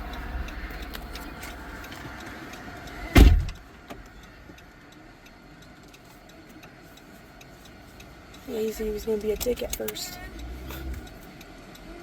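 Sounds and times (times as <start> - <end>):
low rumble inside car: 0.0 - 12.0
car door slamming: 3.0 - 3.6.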